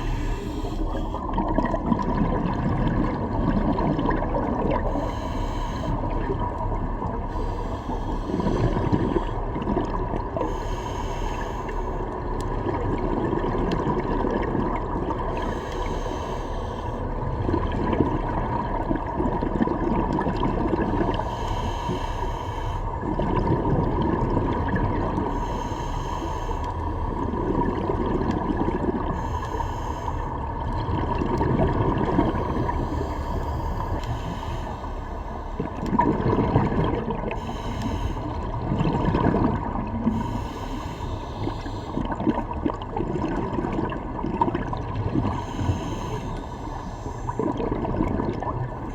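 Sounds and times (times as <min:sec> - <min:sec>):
diver breathing through regulator: 0:00.0 - 0:01.4, 0:04.8 - 0:06.3, 0:07.3 - 0:09.5, 0:10.4 - 0:12.2, 0:15.3 - 0:17.2, 0:20.8 - 0:23.1, 0:25.2 - 0:27.3, 0:28.9 - 0:30.6, 0:32.2 - 0:35.8, 0:37.2 - 0:39.3, 0:39.9 - 0:42.2, 0:45.2 - 0:47.6
faint steady hum: 0:00.0 - 0:48.9
exhaled bubbles rushing: 0:01.0 - 0:05.0, 0:12.5 - 0:15.5, 0:17.2 - 0:21.2, 0:23.0 - 0:25.3, 0:27.2 - 0:29.2, 0:30.5 - 0:33.1, 0:35.6 - 0:37.4, 0:38.4 - 0:40.4, 0:42.0 - 0:45.4, 0:47.2 - 0:48.9.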